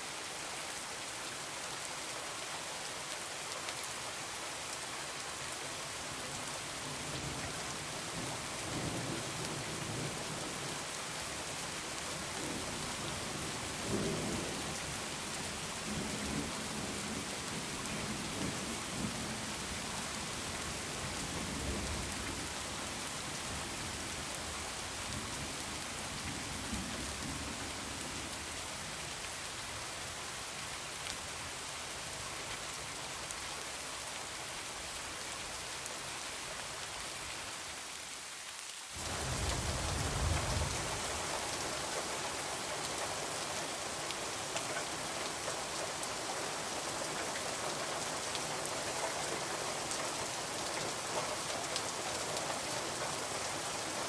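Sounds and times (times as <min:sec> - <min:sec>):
heavy rain hissing: 0:38.9 - 0:54.0.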